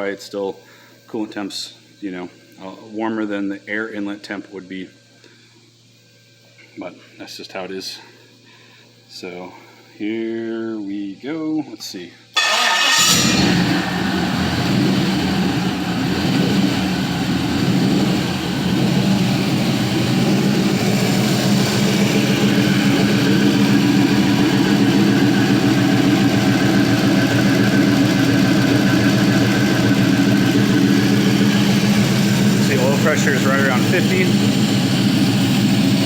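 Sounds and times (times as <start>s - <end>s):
engine idling: 12.4s - 36.0s.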